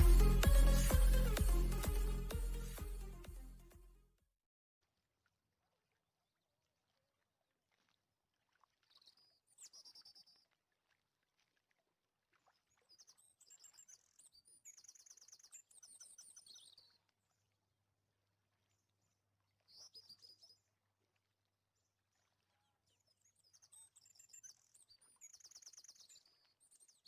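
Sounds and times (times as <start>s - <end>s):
faint birdsong chirps: 12.7s - 17.4s, 22.6s - 27.0s.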